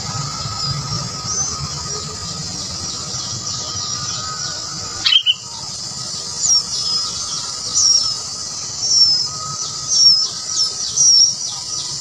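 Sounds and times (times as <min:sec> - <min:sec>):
high-pitched insect drone: 0:00.0 - 0:12.0
short high bird chirps: 0:05.0 - 0:05.5.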